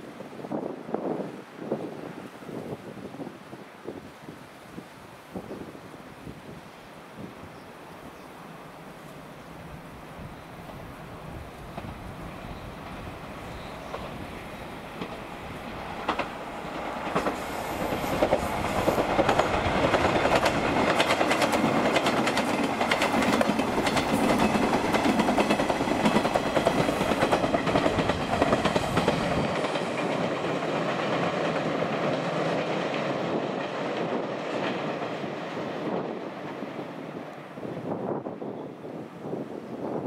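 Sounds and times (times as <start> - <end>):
train wheels clacking over rail joints: 14.8 - 35.4.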